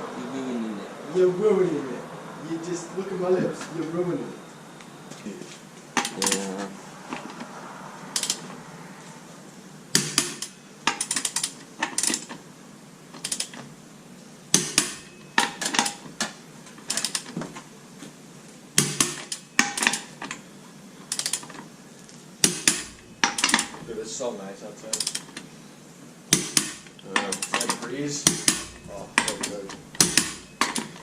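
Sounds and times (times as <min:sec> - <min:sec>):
metal tools clinking: 0:06.0 - 0:07.4, 0:22.4 - 0:24.0, 0:26.4 - 0:31.0.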